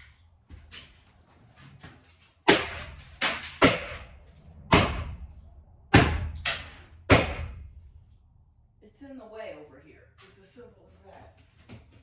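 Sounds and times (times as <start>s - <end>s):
hard bangs on truck: 4.7s - 5.2s, 5.9s - 7.6s.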